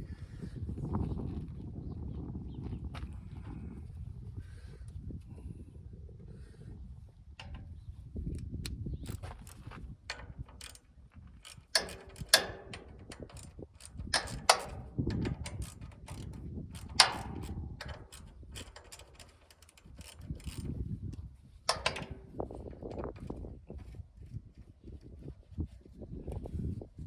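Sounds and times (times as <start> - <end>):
socket ratchet clicking: 8.3 - 20.9, 21.7 - 23.4
tools knocking: 11.5 - 19.3.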